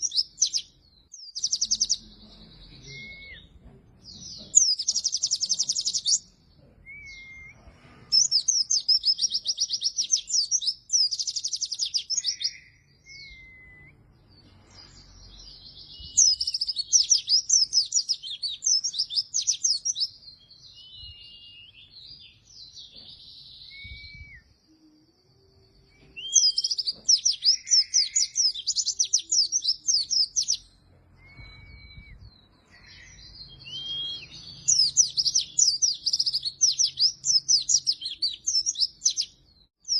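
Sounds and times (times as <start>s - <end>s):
bird twittering song: 0.0s - 39.9s
bird whistled notes: 6.9s - 7.6s, 8.2s - 14.0s, 23.6s - 24.6s, 31.2s - 39.3s.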